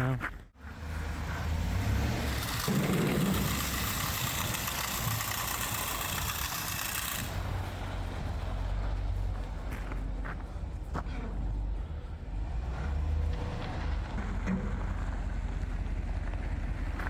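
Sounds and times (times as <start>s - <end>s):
truck engine running: 0.0s - 17.0s
salt spreader hissing: 2.2s - 7.5s.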